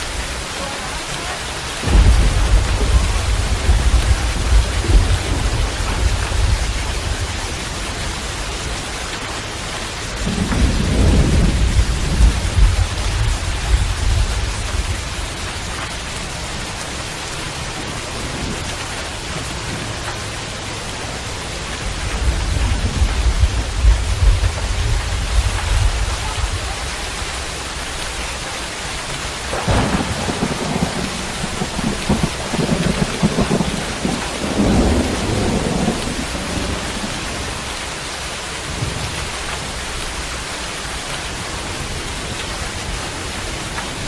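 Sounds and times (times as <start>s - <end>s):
heavy rain hissing: 0.0s - 44.0s
deep low rumble: 22.0s - 26.9s.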